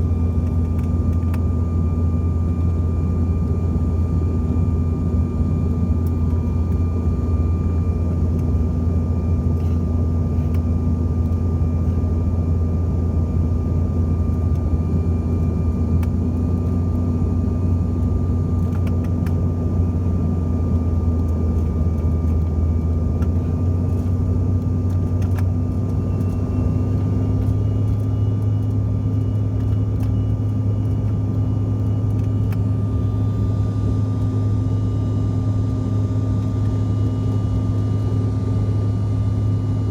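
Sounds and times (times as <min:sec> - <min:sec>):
jet engine drone: 0:00.0 - 0:39.9
thin steady whine: 0:00.0 - 0:39.9.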